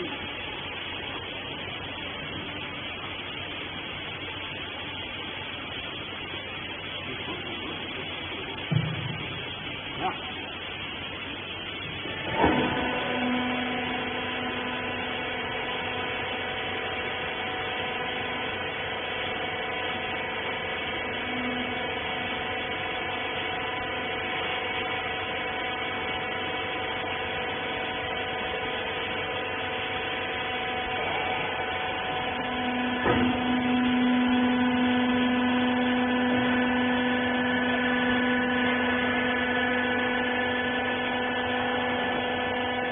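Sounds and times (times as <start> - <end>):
hydraulic power unit hum: 0.0 - 42.9
knock: 8.7 - 9.2.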